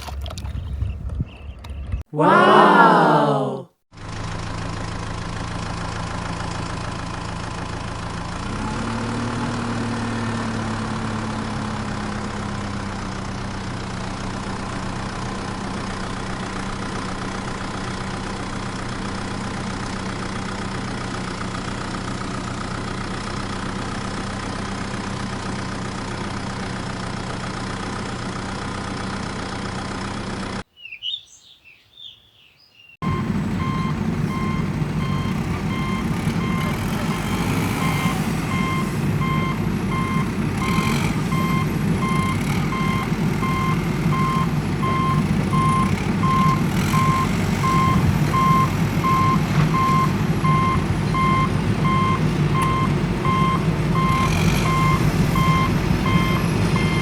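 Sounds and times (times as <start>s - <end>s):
vehicle engine running: 3.9s - 30.6s, 33.0s - 57.0s
high chirps: 30.7s - 45.8s
vehicle reversing beeps: 33.0s - 57.0s.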